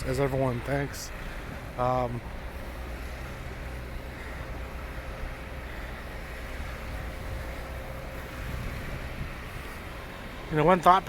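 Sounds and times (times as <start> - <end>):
traffic passing: 0.0 - 11.0.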